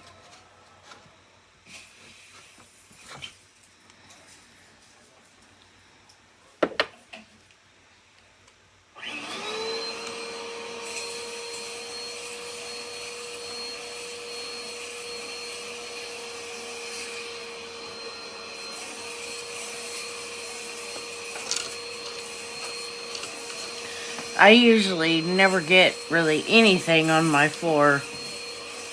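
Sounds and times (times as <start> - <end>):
vacuum cleaner motor whine: 8.9 - 28.9.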